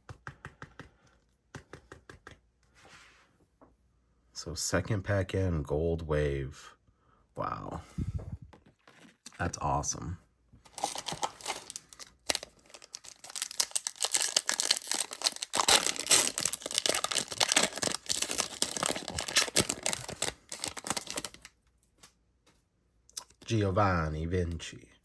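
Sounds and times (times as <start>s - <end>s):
wrapper tearing and crinkling: 10.7s - 21.5s.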